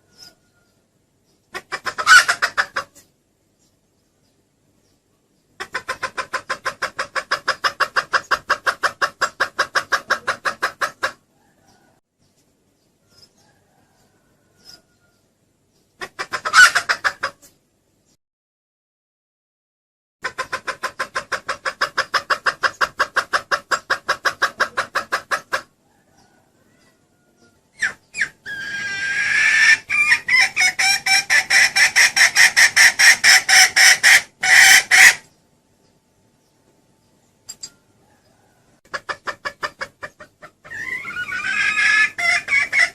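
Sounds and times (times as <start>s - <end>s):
hen clucking rapidly: 1.3s - 3.1s, 5.5s - 12.0s, 15.9s - 17.6s, 20.2s - 35.3s, 38.1s - 42.9s.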